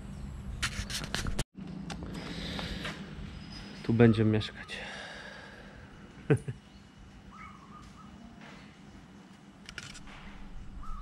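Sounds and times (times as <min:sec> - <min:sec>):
bird calling: 0:02.2 - 0:08.7, 0:10.5 - 0:11.0.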